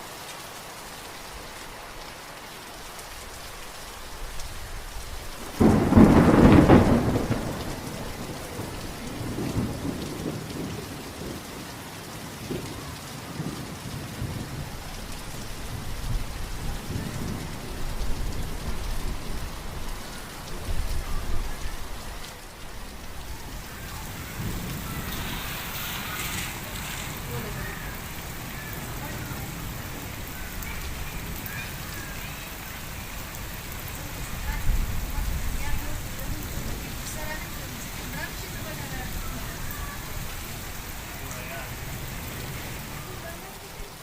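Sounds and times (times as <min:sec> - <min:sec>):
steady rain falling: 0:00.0 - 0:44.0
thunder rumbling: 0:04.3 - 0:44.0
thunder clap: 0:05.4 - 0:11.4, 0:23.6 - 0:40.6.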